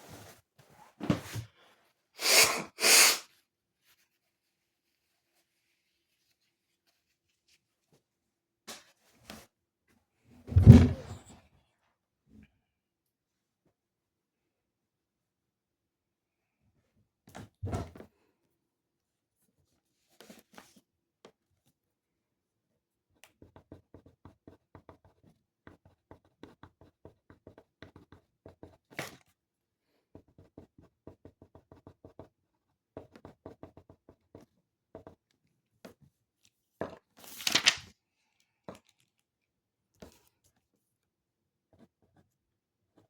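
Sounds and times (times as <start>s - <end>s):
pen scratching on paper: 23.4s - 29.0s, 30.1s - 32.3s, 41.7s - 42.3s
paper rustling: 37.2s - 37.9s.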